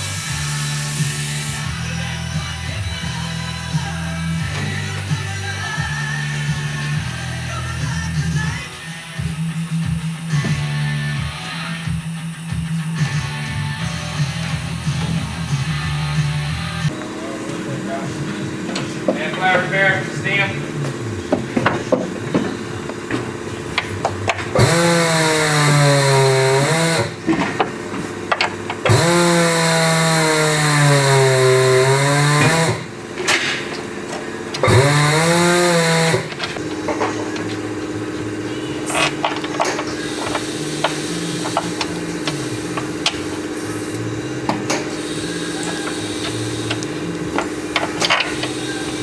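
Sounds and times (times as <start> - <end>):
steady machine hum: 0.0 - 49.0
handheld power tool bursts: 21.6 - 49.0.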